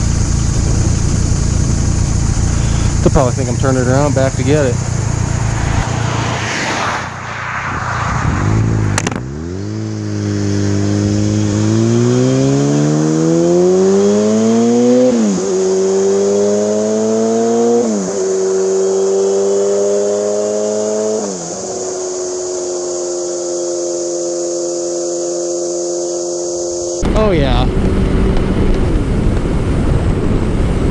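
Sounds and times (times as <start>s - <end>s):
rushing noise: 0.0s - 10.2s
motorcycle engine accelerating: 0.0s - 30.9s
sharp click: 8.9s - 9.3s.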